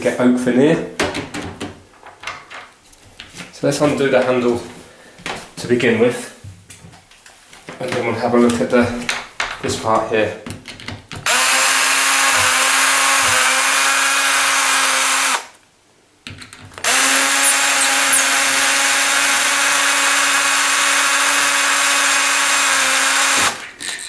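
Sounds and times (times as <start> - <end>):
cordless drill running: 11.3 - 15.6, 16.8 - 24.0.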